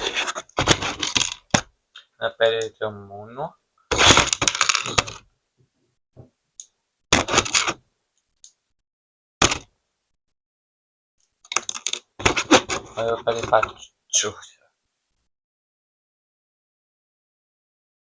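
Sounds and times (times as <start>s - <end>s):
plastic toy bricks clattering: 0.9s - 1.6s, 3.9s - 5.2s, 11.5s - 12.1s.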